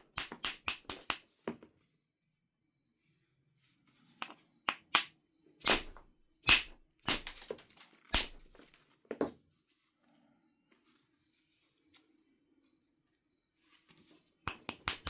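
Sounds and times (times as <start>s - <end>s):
billet striking flint: 4.2s - 8.8s, 14.5s - 15.0s.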